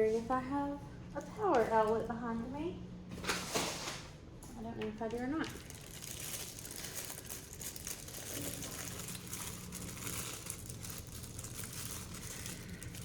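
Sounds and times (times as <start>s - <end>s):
plastic packaging crinkling: 5.4s - 13.0s.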